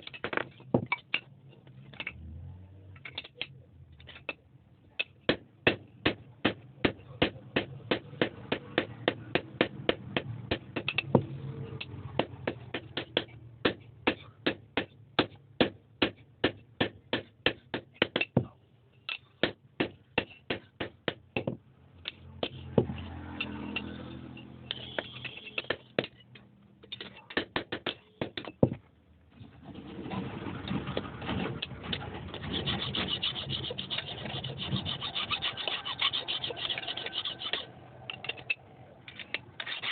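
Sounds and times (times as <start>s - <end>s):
rough scraping: 29.4s - 39.9s.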